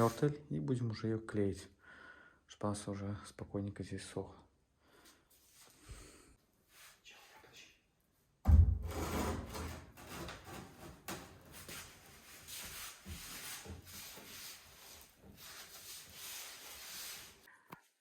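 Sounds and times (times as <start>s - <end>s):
loud knock: 8.4s - 9.4s
scraping on tile and mortar: 8.8s - 17.5s.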